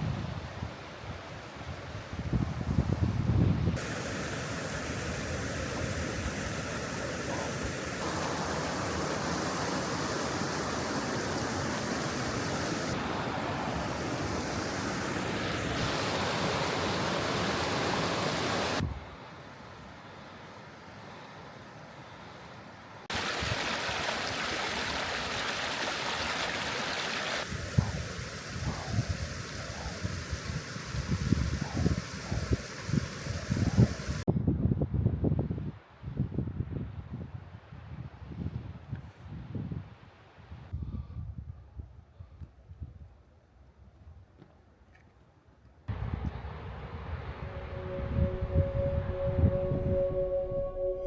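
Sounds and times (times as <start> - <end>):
rushing stream or waterfall: 0.0 - 21.2, 22.8 - 34.3, 45.9 - 51.0
wind buffeting microphone: 1.9 - 13.0, 27.4 - 39.9, 45.9 - 51.0.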